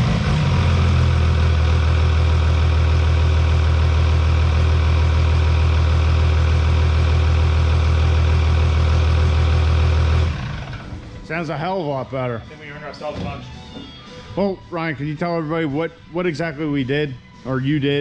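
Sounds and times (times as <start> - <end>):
diesel engine idling: 0.0 - 11.4.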